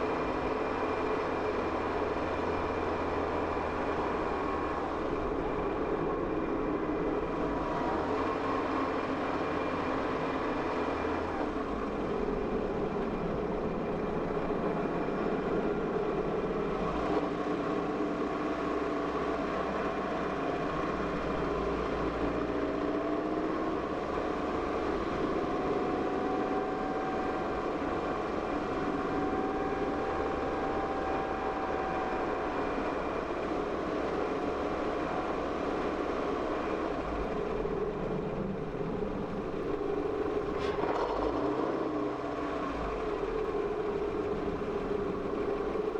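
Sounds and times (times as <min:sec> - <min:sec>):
road noise: 0:00.0 - 0:45.9
car engine hum: 0:23.6 - 0:45.9.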